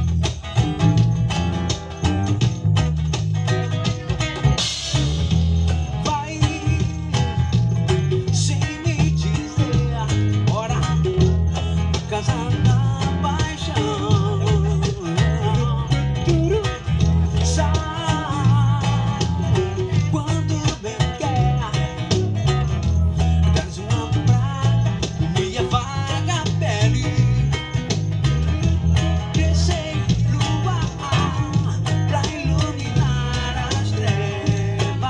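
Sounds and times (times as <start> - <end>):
music with beat bass and guitar: 0.0 - 35.0
person singing: 29.3 - 35.0.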